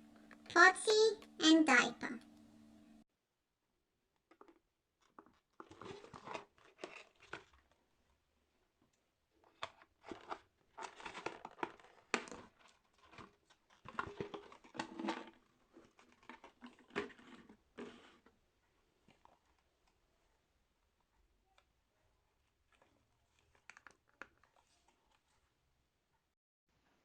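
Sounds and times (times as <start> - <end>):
packaging crinkling and tearing: 5.6 - 7.8, 9.5 - 18.2, 22.7 - 25.2.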